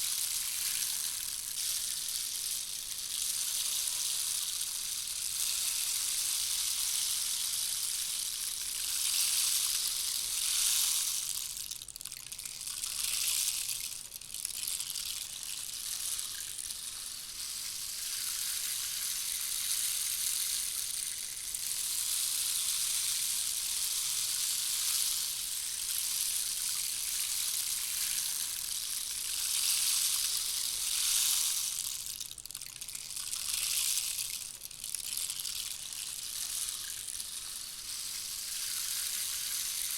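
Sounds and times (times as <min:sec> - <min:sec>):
rain stick rushing patter: 0:25.9 - 0:39.9.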